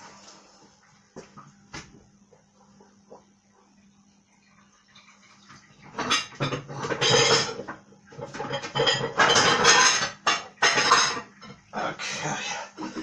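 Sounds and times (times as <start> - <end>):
dishes and utensils clattering: 5.8 - 11.7.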